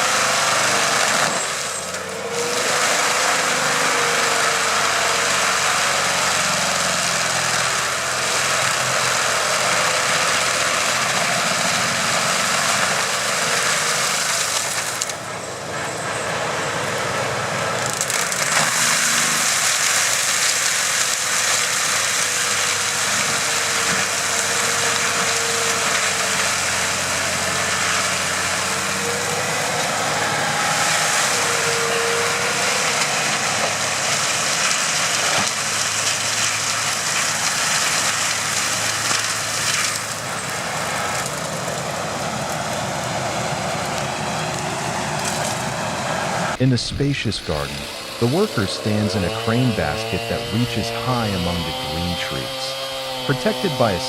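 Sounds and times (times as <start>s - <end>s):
stump grinder running: 0.0s - 54.0s.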